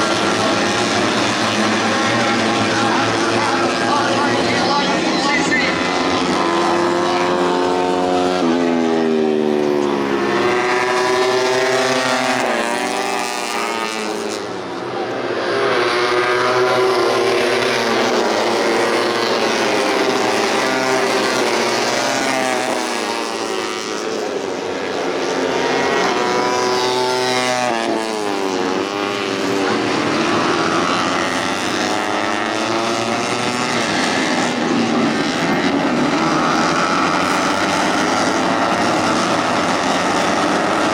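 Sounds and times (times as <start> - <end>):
racing motorcycles accelerating: 0.0 - 40.9.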